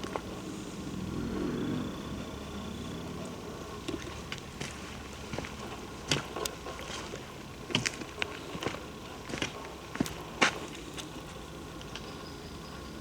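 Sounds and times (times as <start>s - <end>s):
passing vehicle engine hum: 0.0s - 7.6s
footsteps on trail: 3.7s - 11.4s.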